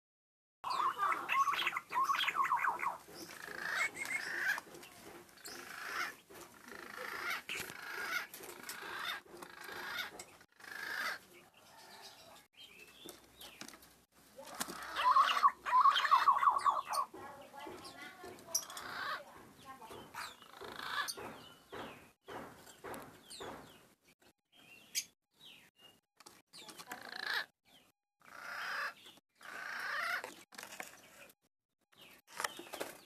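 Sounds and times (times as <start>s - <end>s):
warbling whistled bird calls: 0.6s - 4.5s, 14.9s - 17.1s.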